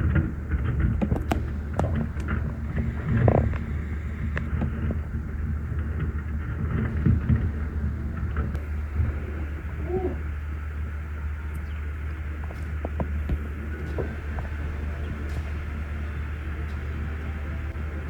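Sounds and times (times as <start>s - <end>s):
boat motor humming: 0.0s - 18.0s.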